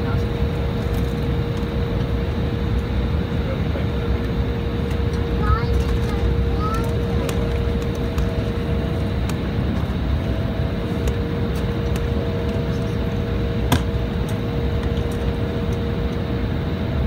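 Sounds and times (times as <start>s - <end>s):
airliner cabin engine noise: 0.0s - 17.0s
constant hum: 0.0s - 17.0s.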